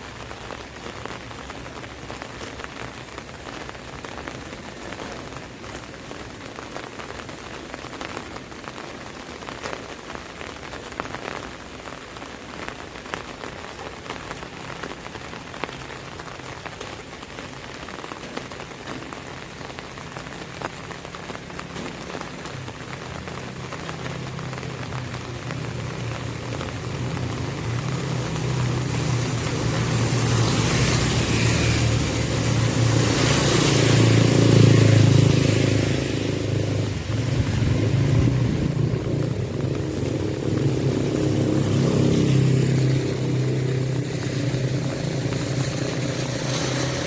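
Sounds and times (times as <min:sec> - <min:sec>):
rain pattering on an umbrella: 0:00.0 - 0:47.0
vehicle engine hum: 0:18.4 - 0:47.0.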